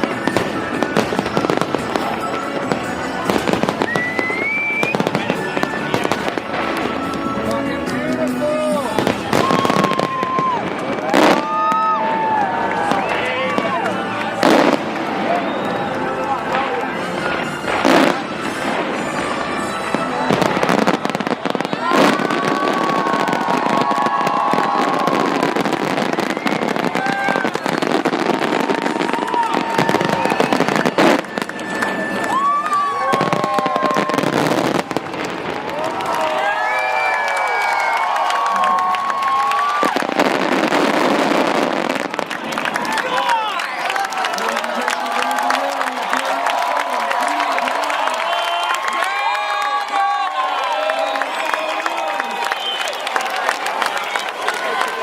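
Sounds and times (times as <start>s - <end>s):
rising firework whistle: 0.0s - 7.4s, 8.9s - 13.7s, 17.2s - 42.3s, 48.1s - 53.5s
fireworks crackling and banging: 0.0s - 55.0s.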